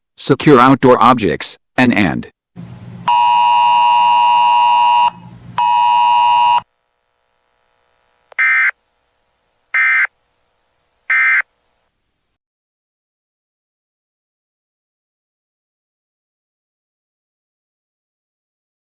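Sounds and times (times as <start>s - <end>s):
long electronic beep tones: 3.1s - 6.7s, 8.4s - 8.8s, 9.8s - 10.1s, 11.1s - 11.4s
short data bursts: 3.1s - 6.7s, 8.3s - 8.8s, 9.7s - 10.2s, 11.0s - 11.5s.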